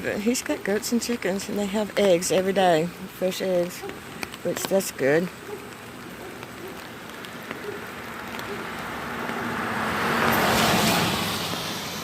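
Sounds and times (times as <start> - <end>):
car passing by: 7.9 - 12.0.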